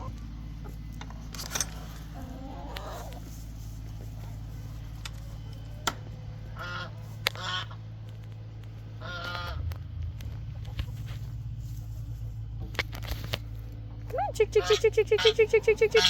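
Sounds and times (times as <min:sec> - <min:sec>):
steady low hum: 0:00.0 - 0:16.0
fowl calling: 0:06.4 - 0:07.9, 0:09.0 - 0:09.7, 0:14.1 - 0:16.0.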